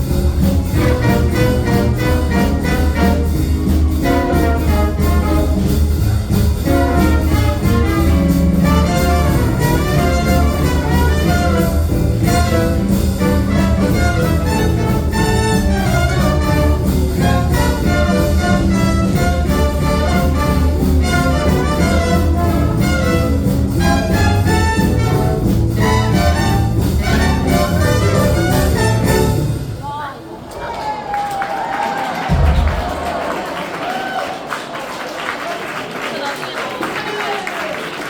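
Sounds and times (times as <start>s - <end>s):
jazz band playing: 0.0s - 30.0s.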